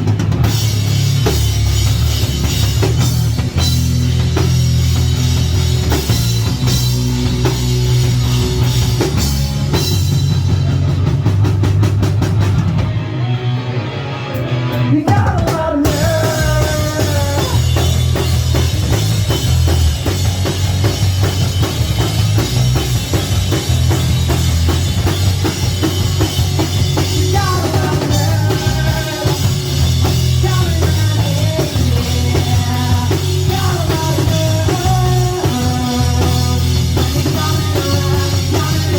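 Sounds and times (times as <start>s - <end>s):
lead guitar line with bending notes: 0.0s - 15.2s
drum kit: 0.0s - 38.9s
rock band playing: 0.0s - 38.9s.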